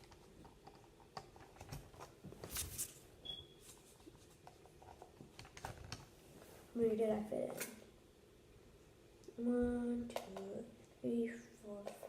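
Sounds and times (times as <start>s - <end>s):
plastic clicks and rustles: 4.4s - 6.1s.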